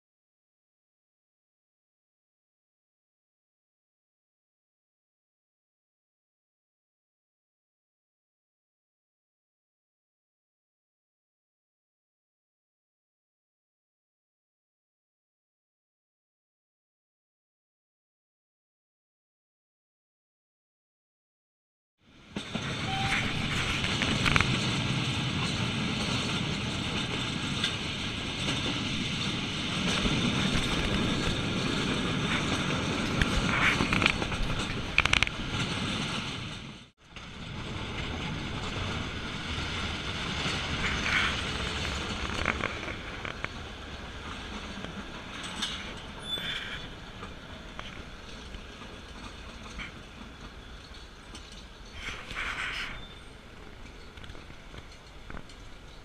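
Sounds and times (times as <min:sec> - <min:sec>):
train wheels rumbling and rattling: 0:22.1 - 0:56.0.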